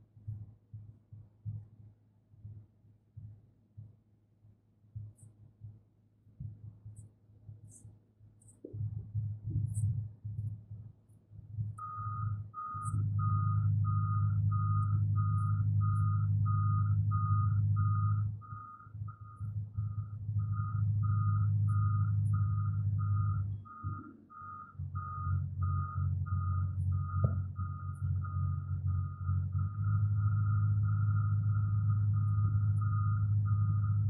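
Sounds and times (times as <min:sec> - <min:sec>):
low engine hum: 0:00.0 - 0:34.0
reversing alarm beeping: 0:11.8 - 0:34.0.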